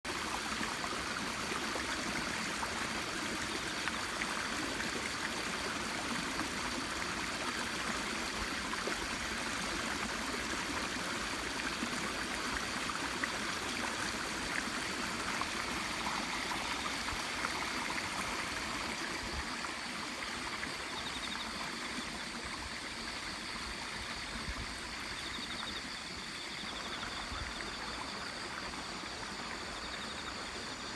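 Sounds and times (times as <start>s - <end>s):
water running and trickling: 0.1s - 24.5s.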